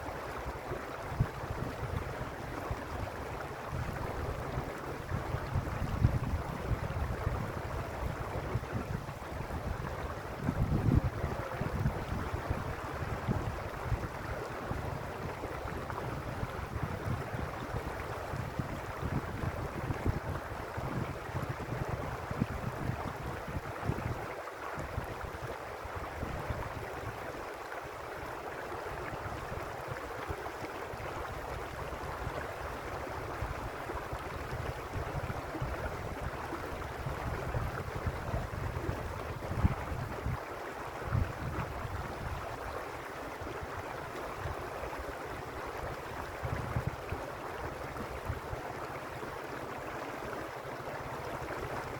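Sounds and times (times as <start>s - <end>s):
stream water rushing over rocks: 0.0s - 51.9s.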